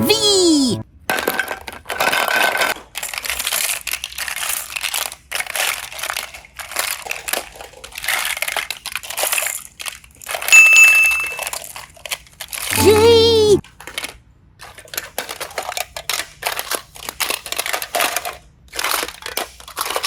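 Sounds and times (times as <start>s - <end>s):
steady ringing tone: 10.6s - 11.4s.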